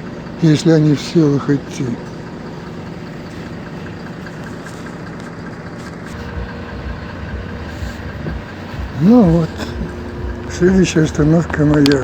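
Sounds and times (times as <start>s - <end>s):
bus engine running: 0.0s - 12.0s
road rumble: 0.0s - 12.0s
low thumps: 6.2s - 12.0s.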